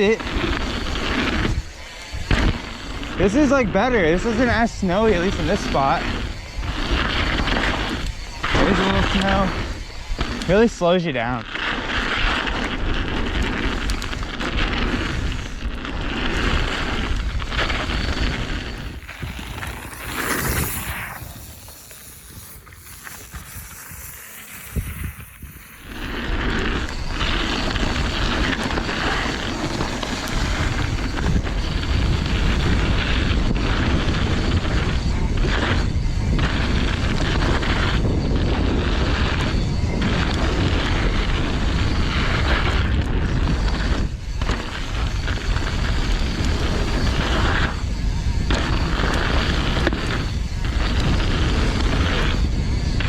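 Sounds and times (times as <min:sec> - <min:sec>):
tyres rolling over snowy dirt: 0:00.0 - 0:34.6
wind buffeting microphone: 0:00.0 - 0:53.0.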